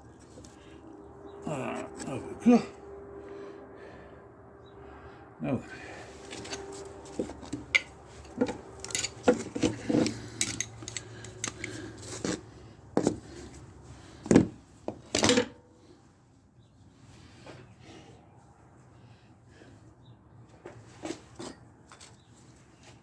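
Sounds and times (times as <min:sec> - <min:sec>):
metal tools clinking: 0:06.1 - 0:12.4.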